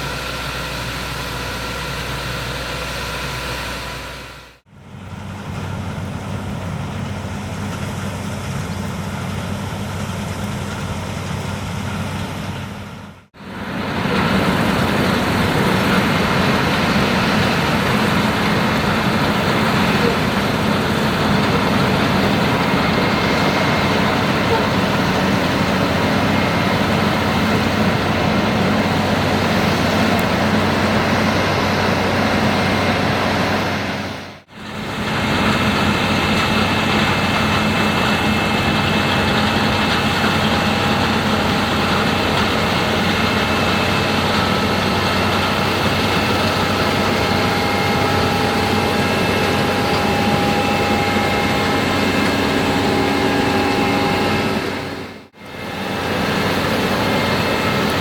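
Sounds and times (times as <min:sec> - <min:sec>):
combine harvester engine: 0:00.0 - 0:58.0
threshing machinery whine and hum: 0:00.0 - 0:58.0.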